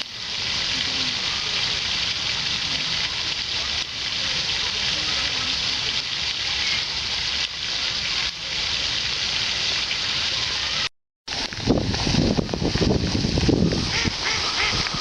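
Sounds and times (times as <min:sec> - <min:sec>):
water hissing: 0:00.0 - 0:15.0.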